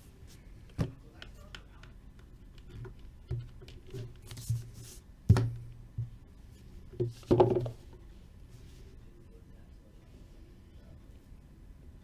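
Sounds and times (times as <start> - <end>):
boxes thudding on tabletop: 5.3 - 6.2, 7.0 - 7.8.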